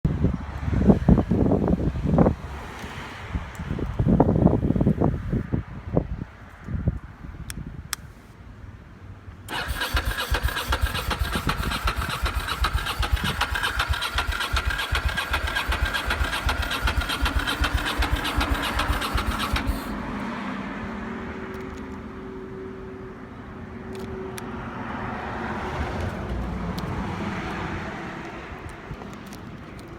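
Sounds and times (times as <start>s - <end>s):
motorcycle starter cranking: 9.5s - 20.0s.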